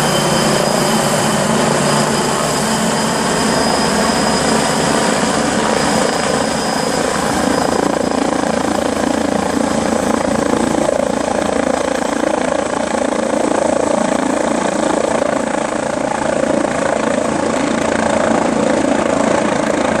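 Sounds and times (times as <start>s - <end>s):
helicopter engines and rotor: 0.0s - 20.0s.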